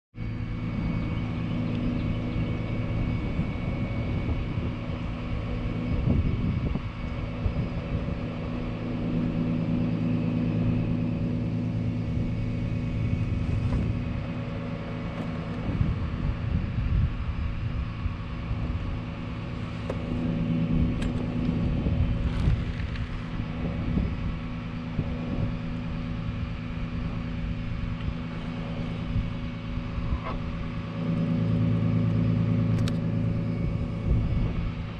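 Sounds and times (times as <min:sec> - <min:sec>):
truck engine humming: 0:00.2 - 0:34.9.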